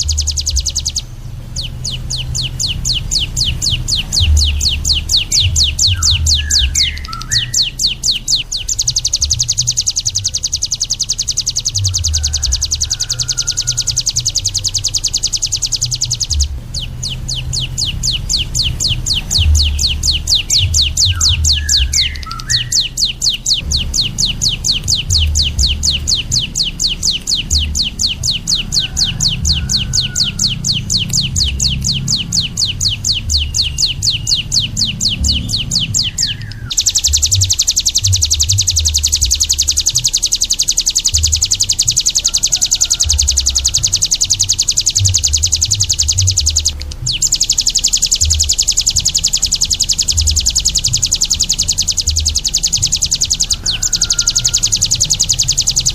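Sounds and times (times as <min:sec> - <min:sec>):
songbird chattering: 0:00.0 - 0:55.9.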